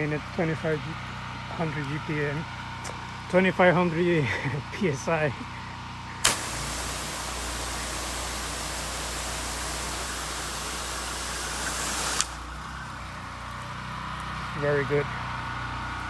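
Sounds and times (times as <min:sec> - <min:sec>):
engine low hum: 0:00.0 - 0:16.0
pressure washer spray hissing: 0:06.2 - 0:13.0.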